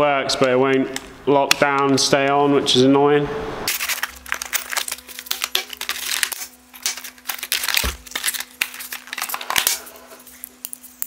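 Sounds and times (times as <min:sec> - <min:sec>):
packaging rustling and crinkling: 0:03.7 - 0:11.0.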